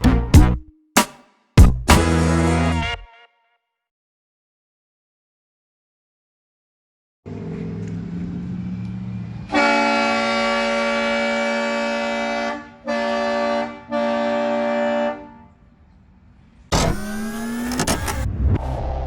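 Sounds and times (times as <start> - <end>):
air horn blasting a chord: 2.0 - 3.4, 9.5 - 15.5.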